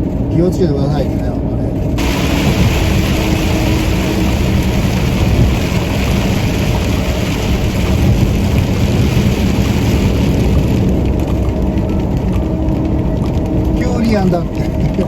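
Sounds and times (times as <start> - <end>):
truck engine drone: 0.0 - 15.0
heavy rain hissing: 2.0 - 11.0.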